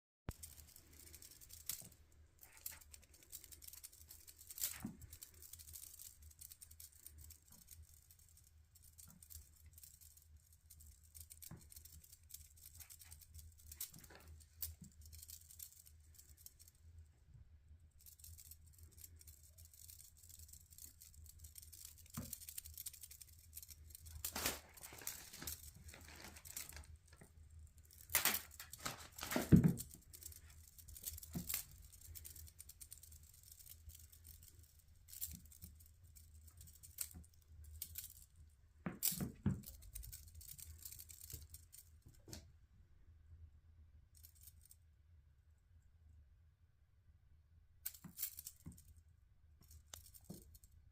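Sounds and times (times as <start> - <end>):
kittens scratching and rustling: 0.3 - 16.7, 18.1 - 38.2.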